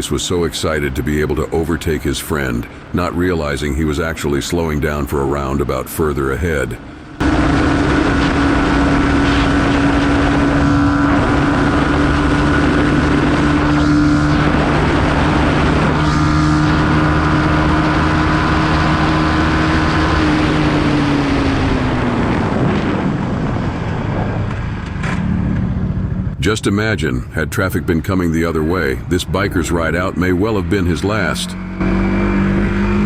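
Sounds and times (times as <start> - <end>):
motorcycle engine running: 6.8 - 26.4, 30.4 - 33.0
wind noise on microphone: 7.2 - 26.4.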